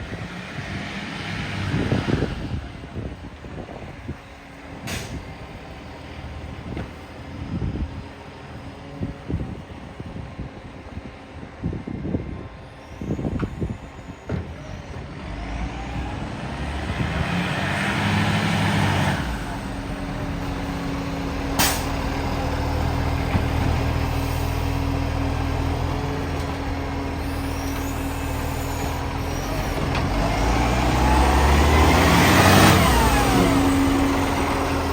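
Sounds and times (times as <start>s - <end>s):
truck engine running: 12.8s - 34.9s
loud exhaust hiss: 19.3s - 31.4s.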